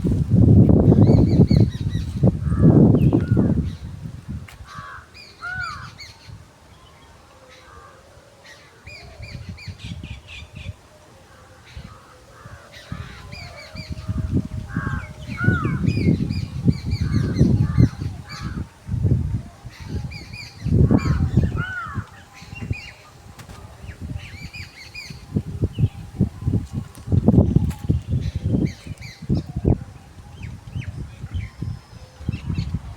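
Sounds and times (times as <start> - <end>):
birds chirping: 0.0 - 3.9, 8.8 - 32.9
crow-like calls: 4.7 - 6.0, 11.3 - 18.7, 20.6 - 23.1.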